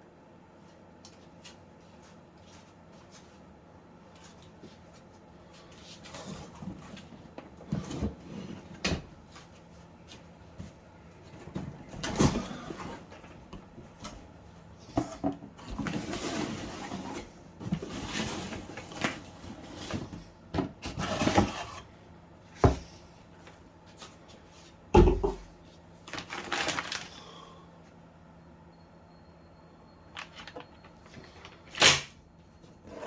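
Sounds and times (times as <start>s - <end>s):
packaging rustling and scraping: 15.0s - 21.9s, 26.0s - 27.3s, 30.2s - 32.0s.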